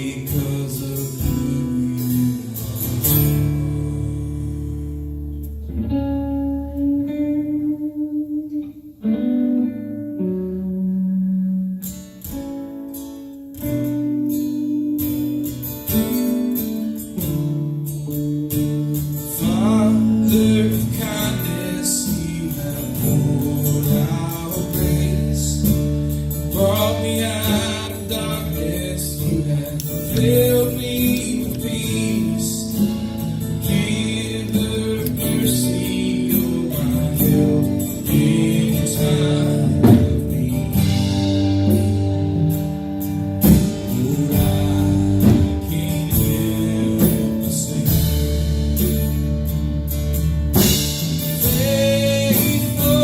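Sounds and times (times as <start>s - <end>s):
live worship band with guitar: 0.0s - 53.0s.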